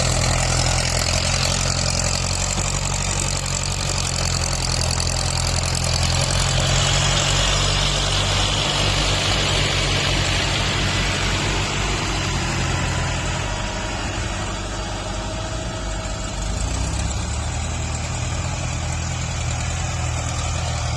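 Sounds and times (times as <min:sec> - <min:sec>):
tractor diesel engine running: 0:00.0 - 0:20.9.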